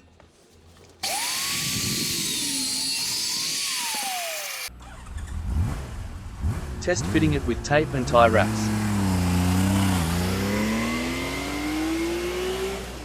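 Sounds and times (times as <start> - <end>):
power tool cutting steel tube: 1.0 - 4.7.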